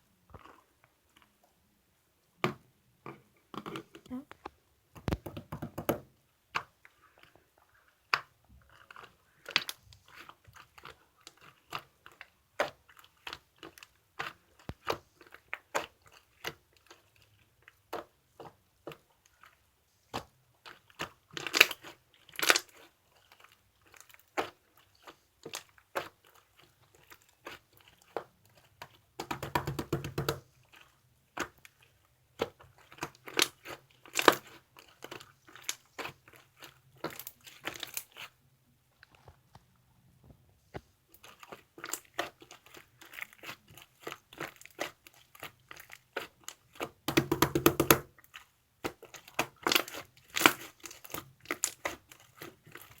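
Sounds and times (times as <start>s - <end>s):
slime being pressed by hand: 24.1s - 38.3s, 41.1s - 53.0s.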